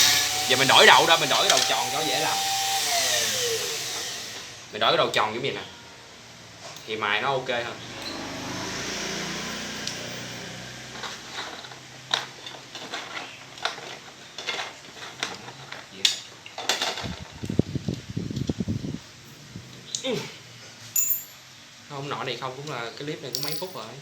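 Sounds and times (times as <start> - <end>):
electric rotary grinder humming: 0.0 - 4.7, 7.8 - 11.2.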